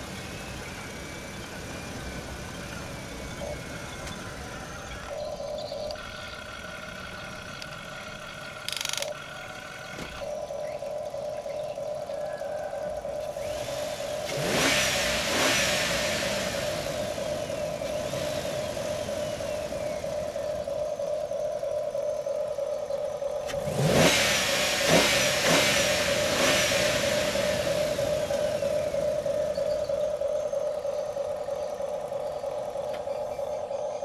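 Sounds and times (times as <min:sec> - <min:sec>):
steady motor whine: 0:00.0 - 0:34.0
passing vehicle noise: 0:09.0 - 0:33.9.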